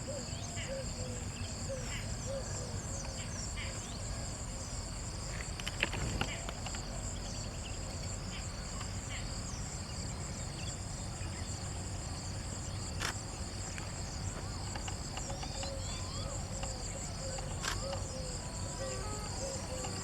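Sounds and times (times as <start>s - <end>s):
high-pitched insect chorus: 0.0s - 20.0s
small chirping calls: 14.1s - 20.0s
sharp clicks: 17.4s - 18.1s.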